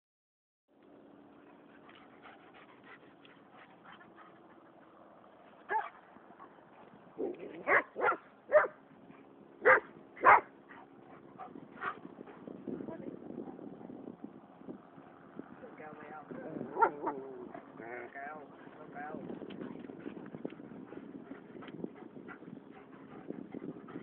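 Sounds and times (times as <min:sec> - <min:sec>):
dog barking: 0:05.7 - 0:05.9, 0:07.6 - 0:08.8, 0:09.6 - 0:10.5, 0:16.7 - 0:17.2.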